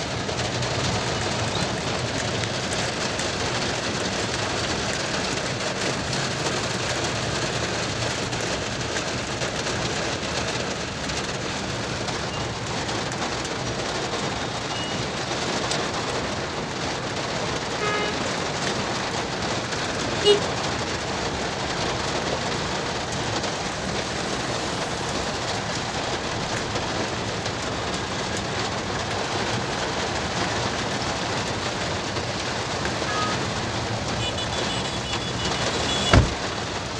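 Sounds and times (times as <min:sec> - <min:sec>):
heavy rain on a car: 0:00.0 - 0:36.9
low vehicle rumble: 0:19.9 - 0:36.9.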